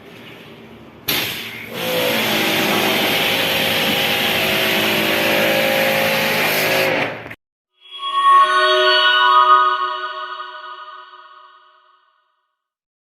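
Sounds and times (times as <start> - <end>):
machine running with hiss and hum: 1.1 - 6.9.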